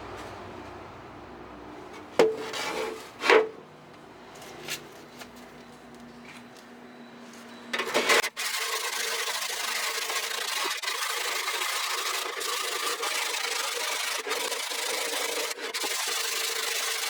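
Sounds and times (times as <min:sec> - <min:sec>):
light scraping: 0:01.9 - 0:03.6, 0:07.2 - 0:10.6
rubbing: 0:07.8 - 0:17.0.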